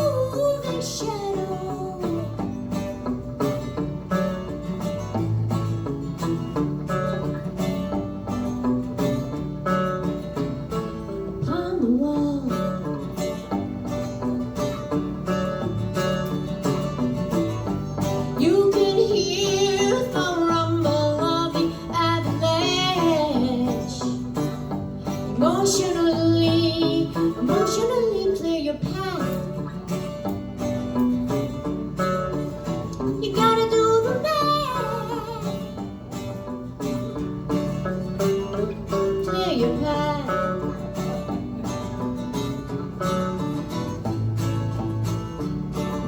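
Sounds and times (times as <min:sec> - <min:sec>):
picked acoustic guitar: 0:00.0 - 0:46.0.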